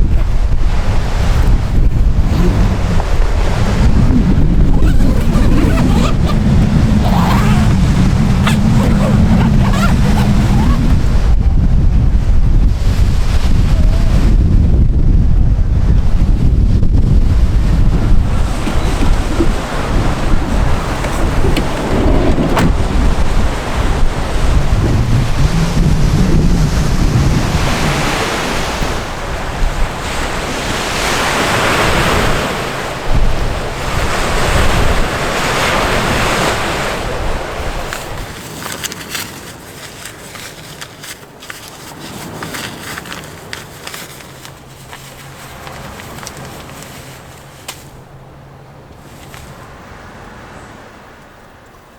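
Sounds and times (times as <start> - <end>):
sea waves washing ashore: 0.0 - 11.4, 17.2 - 51.6
wind buffeting microphone: 0.0 - 38.4.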